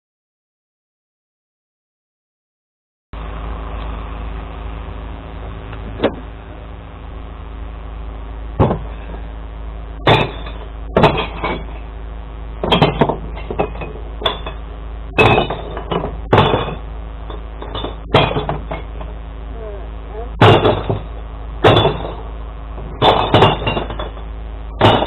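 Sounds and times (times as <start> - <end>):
truck engine idling: 3.2 - 25.0
glass bottles crashing: 10.0 - 11.8, 12.6 - 14.6, 15.2 - 19.1, 20.4 - 25.0.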